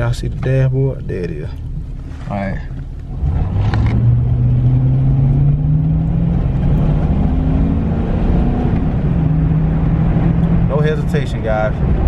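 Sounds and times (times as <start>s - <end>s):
car engine accelerating hard: 3.1s - 12.0s.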